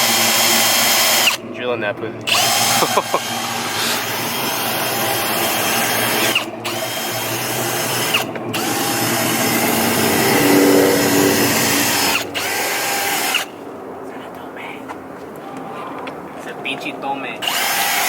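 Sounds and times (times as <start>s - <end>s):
power drill drilling rivets: 0.0s - 1.4s, 2.3s - 9.8s, 17.4s - 18.0s.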